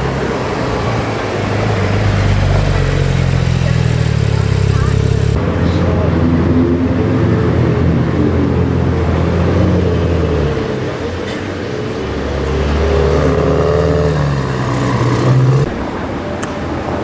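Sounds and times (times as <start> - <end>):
car engine at low revs: 1.4 - 5.8.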